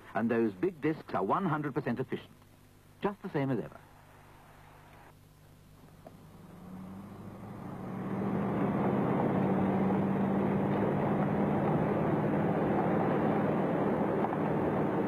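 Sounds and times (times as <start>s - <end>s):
car engine humming: 5.0s - 15.0s
road noise: 5.8s - 15.0s.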